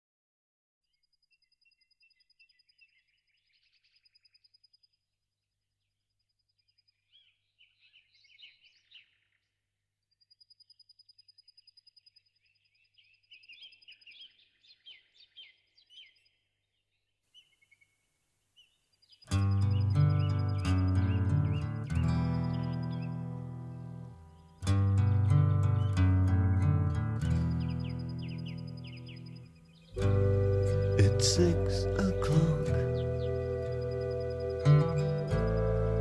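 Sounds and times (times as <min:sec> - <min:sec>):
birds chirping: 0:06.6 - 0:09.6, 0:10.3 - 0:18.0, 0:18.6 - 0:36.0.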